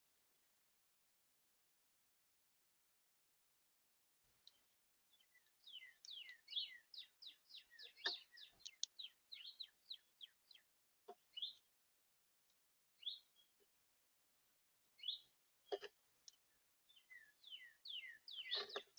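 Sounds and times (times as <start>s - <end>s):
songbird singing: 4.4s - 11.7s, 13.0s - 13.6s, 14.9s - 18.9s.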